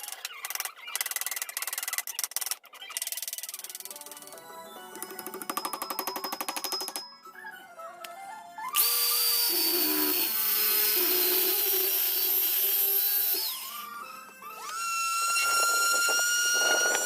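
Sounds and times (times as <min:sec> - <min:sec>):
power tool motor whine: 0:08.7 - 0:17.0.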